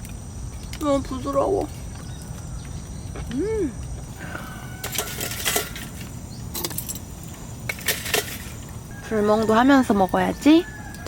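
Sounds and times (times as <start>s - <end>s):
low outdoor rumble: 0.0s - 11.0s
person humming: 3.3s - 4.5s.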